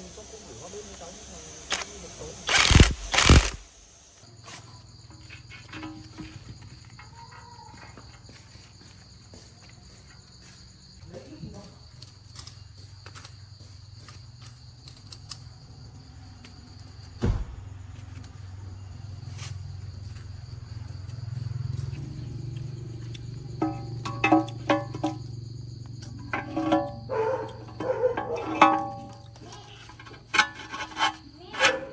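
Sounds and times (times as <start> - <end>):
crickets chirping: 0.0 - 31.9
loud knock: 17.2 - 17.8.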